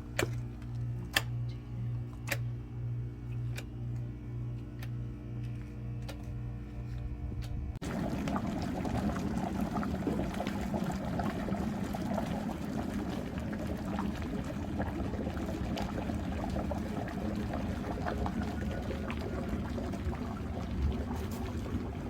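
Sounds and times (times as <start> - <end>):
broth boiling and bubbling: 7.8 - 22.0.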